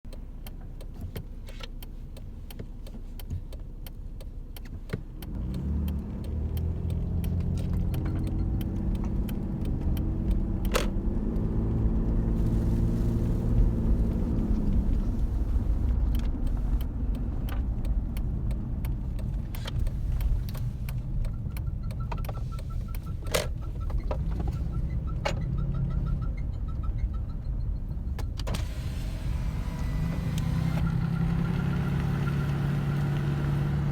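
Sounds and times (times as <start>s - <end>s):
sharp clicks: 0.1s - 11.7s
car engine revving: 5.1s - 26.3s, 28.5s - 33.9s.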